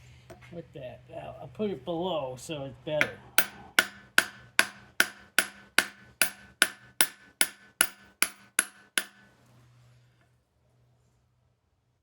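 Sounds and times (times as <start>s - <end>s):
hammer striking metal: 3.0s - 9.3s.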